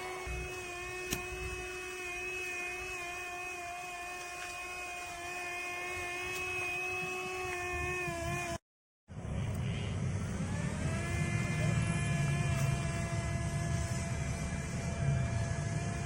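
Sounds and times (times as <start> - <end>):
small electric motor whining: 0.0 - 8.6, 9.5 - 16.0.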